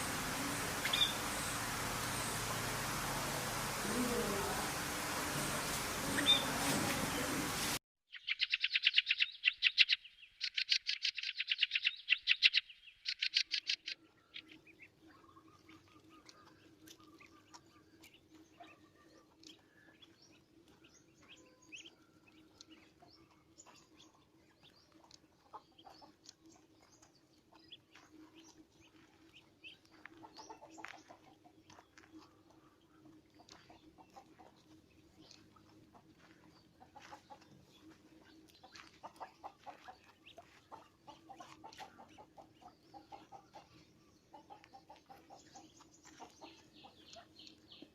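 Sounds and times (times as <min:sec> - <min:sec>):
steady low hum: 0:00.0 - 0:07.7
faint bird chirps: 0:08.1 - 0:17.8.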